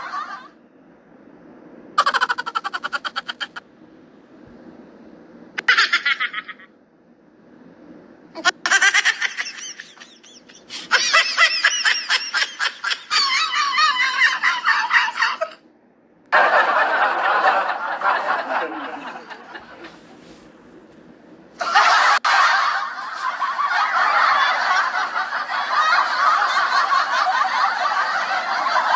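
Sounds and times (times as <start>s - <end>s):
people laughing: 0.0s - 0.6s, 2.0s - 3.6s, 5.6s - 6.7s, 8.4s - 15.6s, 16.3s - 20.4s, 21.6s - 28.9s.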